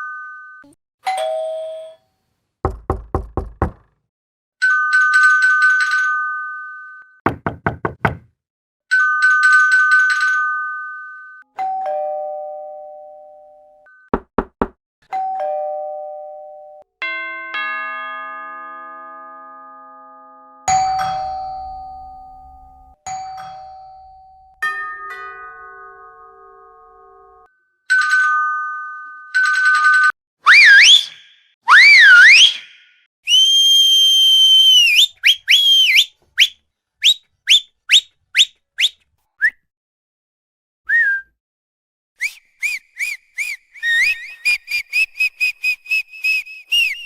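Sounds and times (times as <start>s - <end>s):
knocking on a door: 2.7s - 3.9s, 7.3s - 8.4s, 14.2s - 14.8s
ding-dong door chimes: 11.6s - 13.8s, 15.1s - 25.8s
multi-note door chime: 15.3s - 25.9s.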